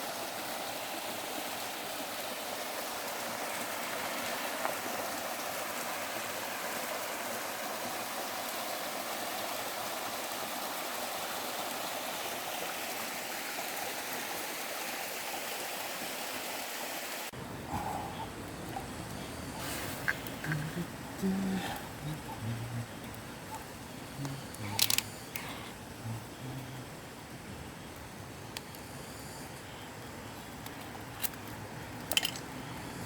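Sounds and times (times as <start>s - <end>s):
stream water rushing: 0.0s - 17.8s.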